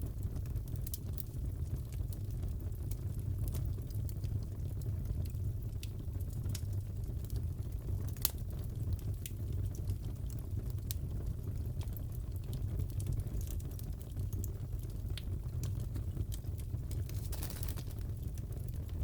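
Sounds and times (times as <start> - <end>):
wood fire crackling: 0.0 - 19.0
sharp pops of burning wood: 16.8 - 18.7.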